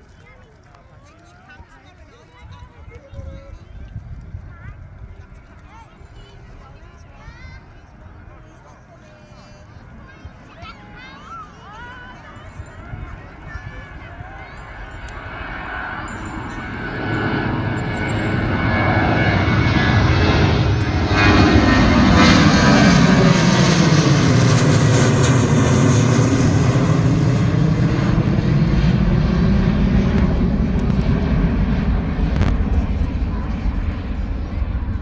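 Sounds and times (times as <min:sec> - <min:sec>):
jet engines at take-off power: 0:03.5 - 0:35.0.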